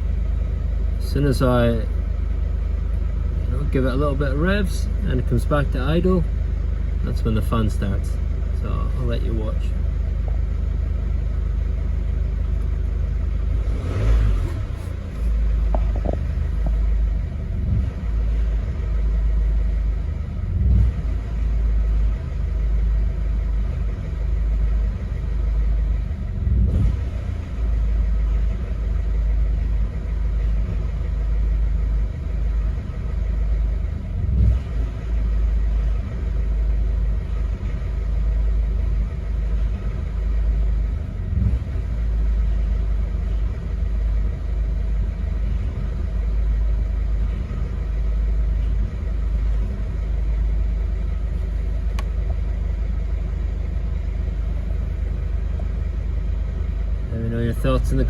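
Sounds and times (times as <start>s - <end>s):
diesel engine idling roughly: 0.0s - 58.0s
diesel engine revving: 0.0s - 58.0s.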